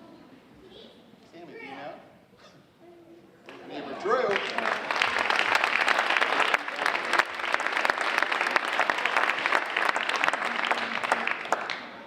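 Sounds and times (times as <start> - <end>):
children clapping: 4.3 - 12.0.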